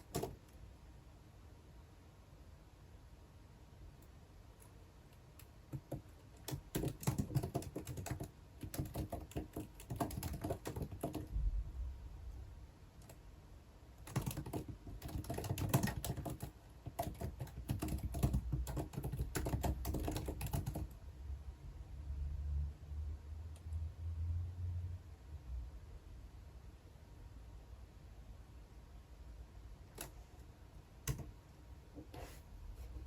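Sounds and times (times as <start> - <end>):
typing on computer keyboard: 0.0 - 0.6, 4.6 - 11.3, 14.0 - 21.0, 31.0 - 31.4.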